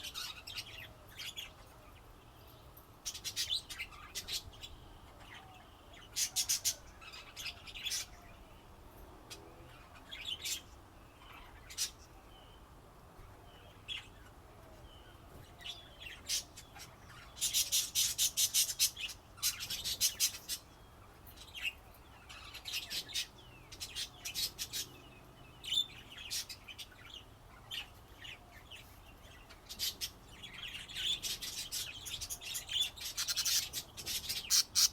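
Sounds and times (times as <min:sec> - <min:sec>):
budgerigars chirping: 0:15.8 - 0:34.9.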